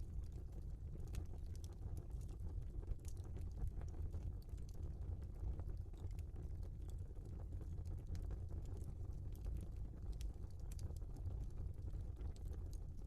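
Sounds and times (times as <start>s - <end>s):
fire crackling and popping: 0.1s - 13.0s.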